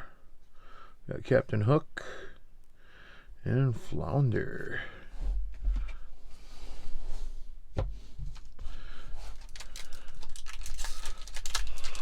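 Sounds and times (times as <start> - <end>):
wrapper tearing and crinkling: 9.3 - 12.0.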